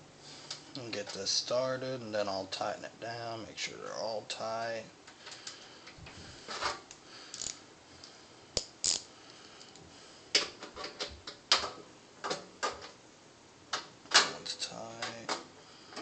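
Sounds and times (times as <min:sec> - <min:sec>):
metal socket clicks and scrapes: 0:07.3 - 0:07.6, 0:08.6 - 0:09.8.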